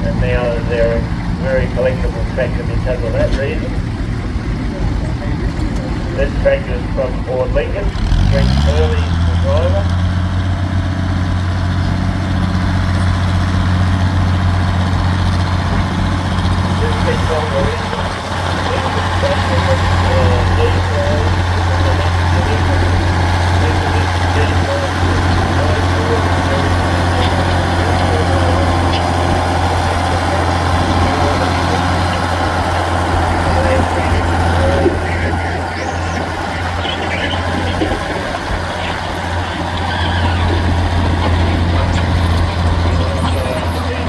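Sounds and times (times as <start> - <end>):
tractor engine running steadily: 0.0 - 44.0.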